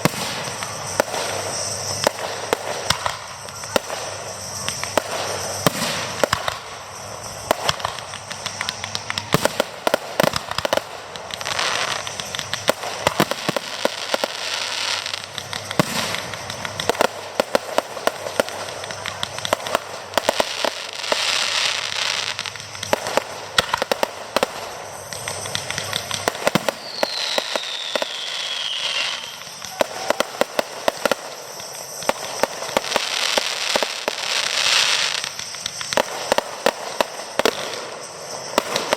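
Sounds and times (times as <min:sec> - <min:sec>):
fireworks bangs and crackling: 0:00.0 - 0:38.9
firework whistle falling in pitch: 0:25.1 - 0:36.0.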